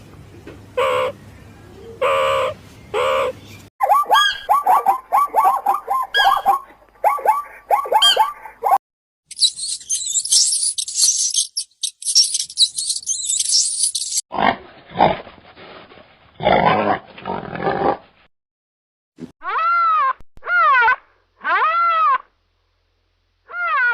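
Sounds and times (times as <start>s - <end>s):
high-pitched chattering squeaks: 9.3s - 14.2s
loud rising and falling calls: 9.3s - 14.2s.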